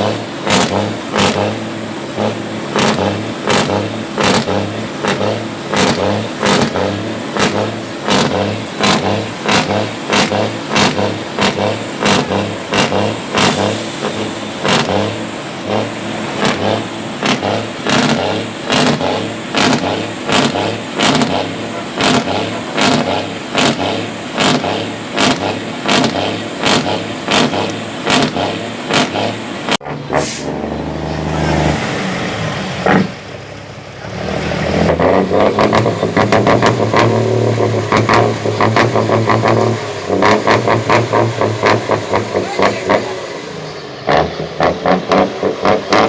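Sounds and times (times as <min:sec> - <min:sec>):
truck engines revving: 0:00.0 - 0:46.0.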